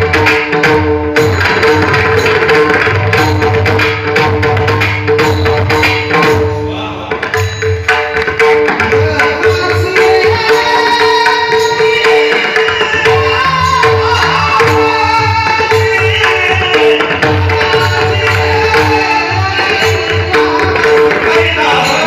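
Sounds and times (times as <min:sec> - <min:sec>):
person singing: 0:08.9 - 0:22.0.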